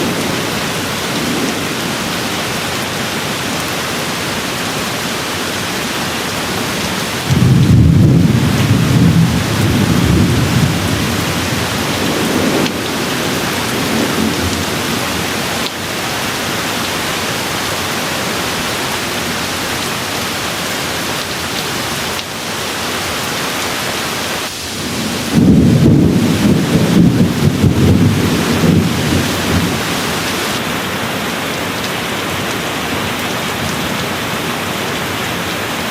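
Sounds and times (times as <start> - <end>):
steady rainfall: 0.0 - 35.9
rolling thunder: 6.0 - 15.6, 24.5 - 30.6.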